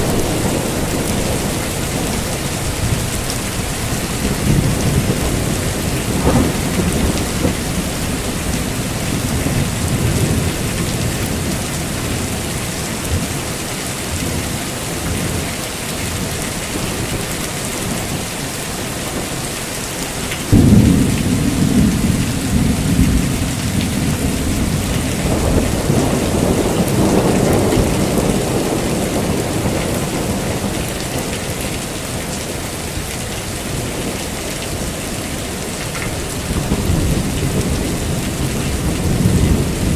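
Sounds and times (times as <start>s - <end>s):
loud thunderclap: 0.0s - 11.5s, 20.5s - 30.9s, 36.4s - 39.9s
rolling thunder: 0.0s - 12.3s, 20.5s - 31.9s, 36.3s - 39.9s
heavy rain: 0.0s - 39.9s.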